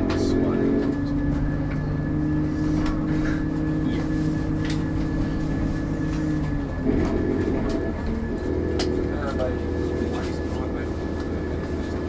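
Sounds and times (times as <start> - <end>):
diesel train engine drone: 0.0 - 12.0
held hum: 0.0 - 12.0.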